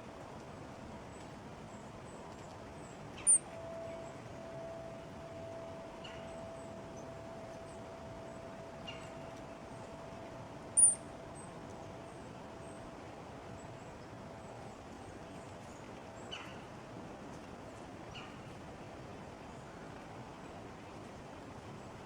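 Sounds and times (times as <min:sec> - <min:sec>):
faint steady hum: 0:00.0 - 0:22.0
songbird chirps: 0:03.2 - 0:12.9.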